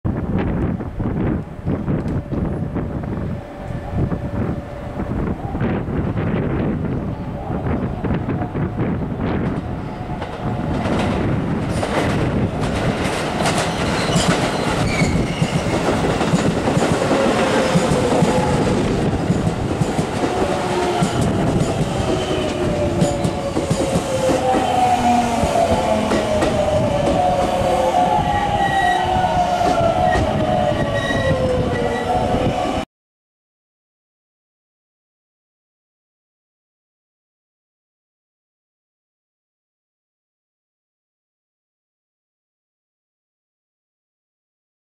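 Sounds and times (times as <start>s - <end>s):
train rumble: 0.1s - 32.8s
train wheels clattering over rail joints: 10.2s - 24.5s.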